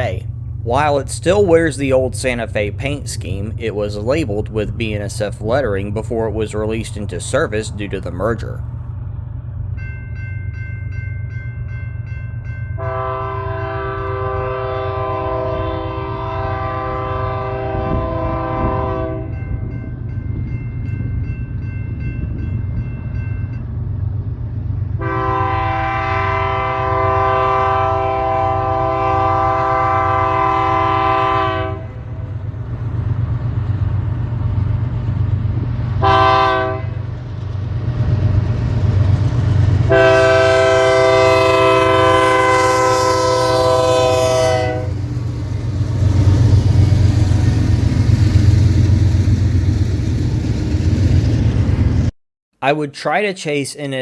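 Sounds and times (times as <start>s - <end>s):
train rumbling: 0.0s - 52.1s
locomotive air horn blasts: 12.8s - 19.4s, 25.0s - 32.1s, 36.0s - 37.0s, 39.9s - 45.0s.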